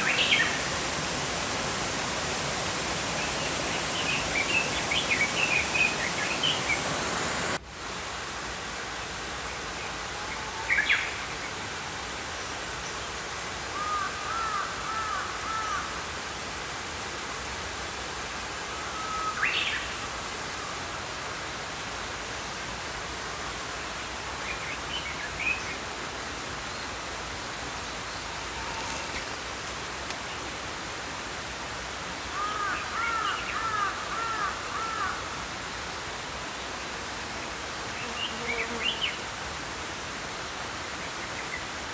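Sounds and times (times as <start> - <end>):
stream rushing: 0.0 - 37.8.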